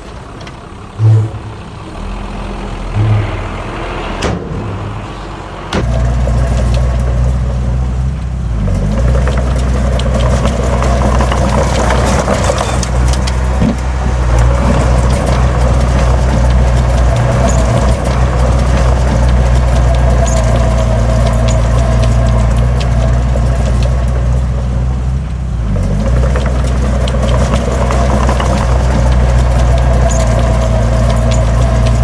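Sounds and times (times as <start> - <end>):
heavy diesel engine running: 0.0 - 32.0
clatter of short clicks: 8.7 - 24.5, 25.8 - 32.0.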